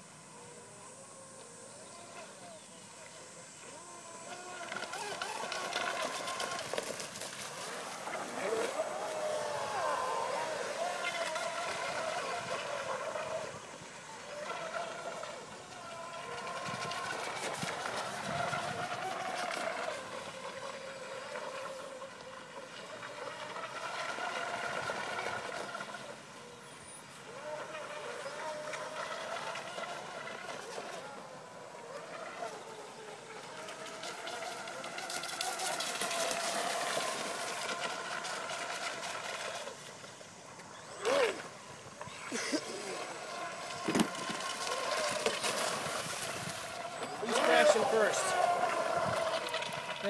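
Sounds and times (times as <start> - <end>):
small engine at high revs: 3.8 - 13.6, 40.7 - 50.0
loud shout: 8.6 - 11.3.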